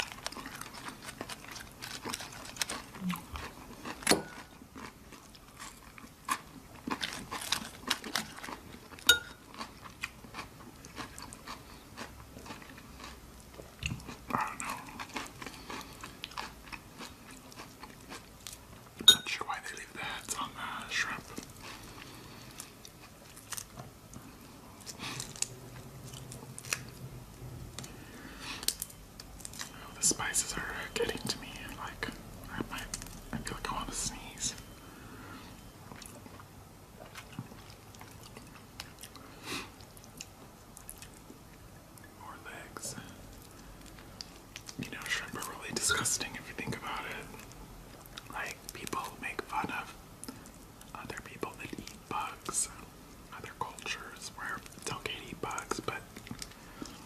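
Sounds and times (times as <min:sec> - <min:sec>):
crunching raw vegetables: 0:00.0 - 0:18.7
chewing: 0:00.0 - 0:18.9, 0:21.1 - 0:27.0, 0:35.5 - 0:42.2, 0:52.7 - 0:57.0.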